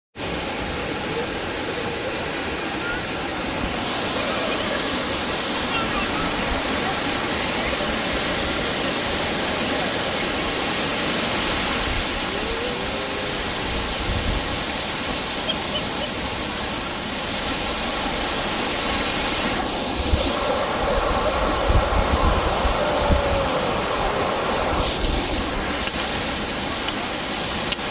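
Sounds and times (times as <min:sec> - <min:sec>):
waterfall rushing: 0:00.2 - 0:27.9
wind buffeting microphone: 0:11.6 - 0:15.2, 0:19.5 - 0:26.7.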